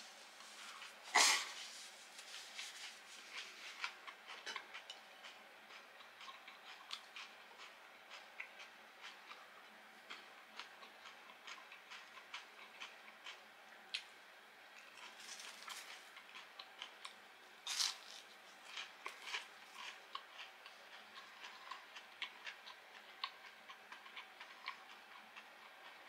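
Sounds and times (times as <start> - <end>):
person chewing fried food: 0.1 - 14.1, 14.7 - 26.0.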